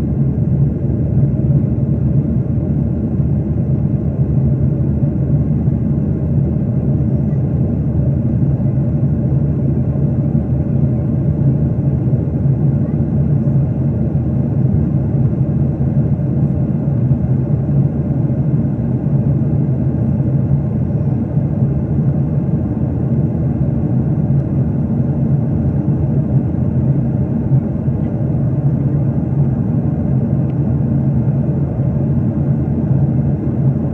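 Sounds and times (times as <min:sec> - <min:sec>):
airliner cabin rumble: 0:00.0 - 0:33.9.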